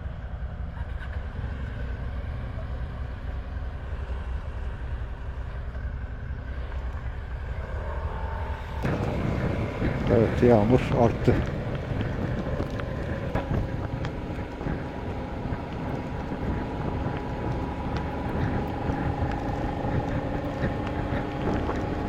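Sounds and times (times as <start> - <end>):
motorcycle engine running: 5.5 - 22.0
wind noise on microphone: 6.6 - 22.0
raindrop ticks: 8.8 - 22.0.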